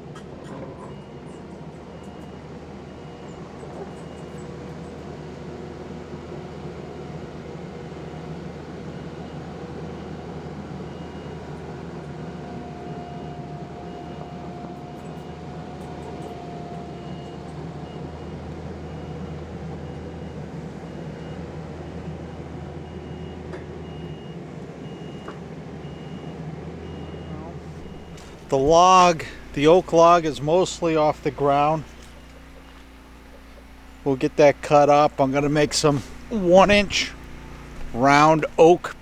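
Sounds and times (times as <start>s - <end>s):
skid steer engine running: 26.8s - 39.0s.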